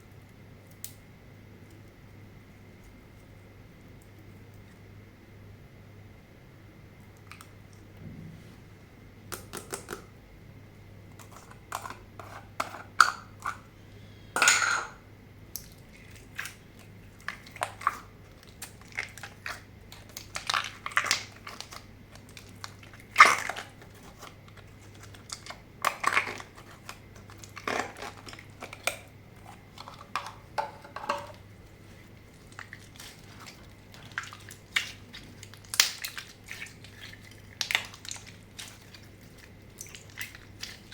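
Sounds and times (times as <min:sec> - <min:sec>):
slime squelching and clicking: 0:32.3 - 0:40.9.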